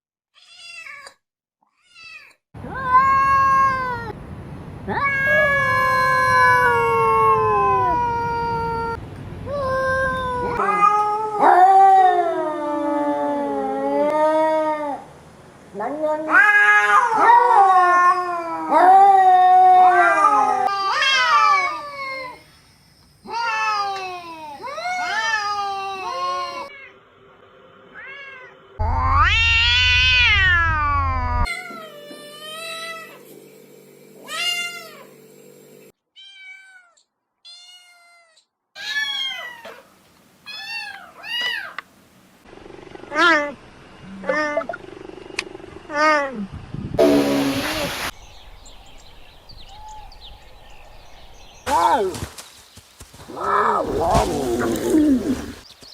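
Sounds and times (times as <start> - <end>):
cats meowing: 1.8 - 4.2, 15.8 - 22.4, 28.0 - 33.2, 36.2 - 39.8, 40.5 - 41.8, 53.3 - 55.6.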